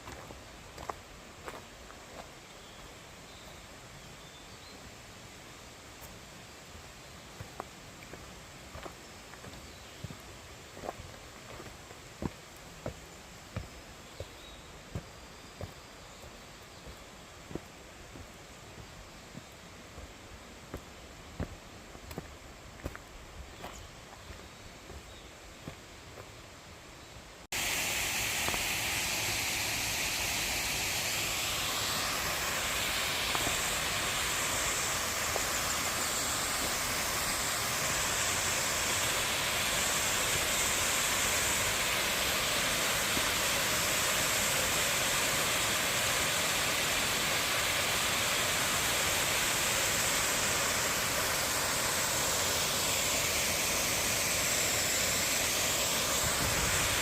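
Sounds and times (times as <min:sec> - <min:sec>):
stream water rushing: 0:27.5 - 0:57.0.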